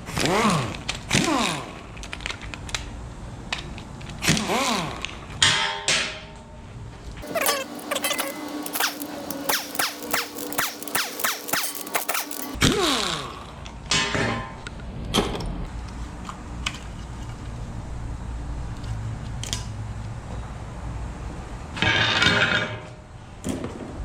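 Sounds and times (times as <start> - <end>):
metal parts clunking: 7.2 - 12.6
motorised hand tool running: 7.2 - 12.6.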